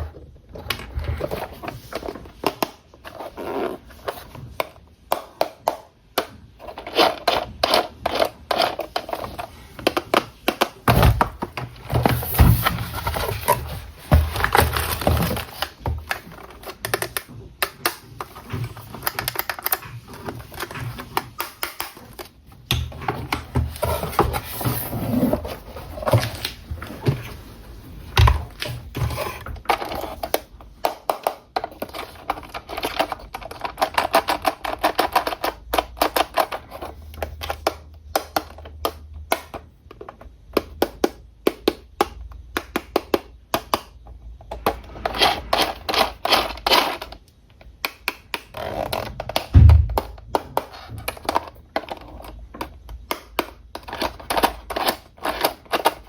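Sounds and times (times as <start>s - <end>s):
clicks and taps handling packaging: 0.6s - 27.4s, 28.1s - 44.8s, 45.6s - 56.0s
heavy thump: 49.5s - 50.0s.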